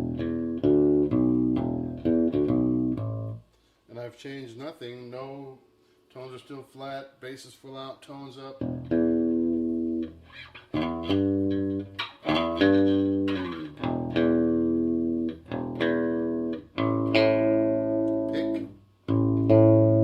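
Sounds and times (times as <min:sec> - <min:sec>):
electric bass guitar plucked notes: 0:00.0 - 0:03.4, 0:08.6 - 0:20.0.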